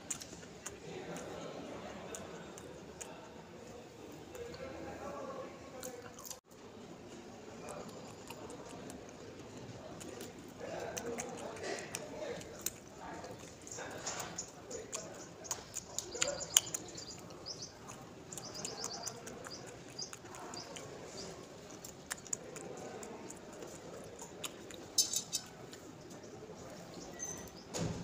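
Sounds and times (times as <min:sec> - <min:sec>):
chewing and mouth clicks: 0:00.0 - 0:05.1, 0:05.7 - 0:27.6
small birds chirping: 0:06.8 - 0:28.0.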